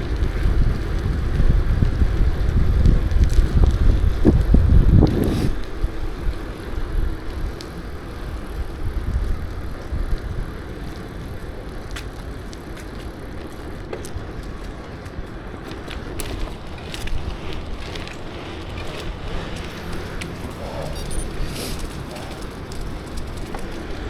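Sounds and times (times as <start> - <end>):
wind on microphone: 0.0 - 10.6
bicycle tyres rumbling: 0.0 - 24.0.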